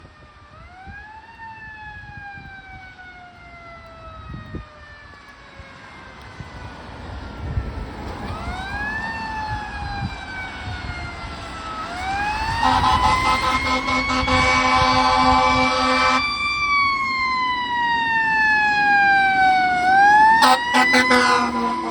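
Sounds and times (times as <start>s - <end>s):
engine and road rumble: 0.0s - 21.9s
fire engine siren wailing: 0.0s - 21.9s
air horn blasting: 12.3s - 16.3s, 20.3s - 21.9s.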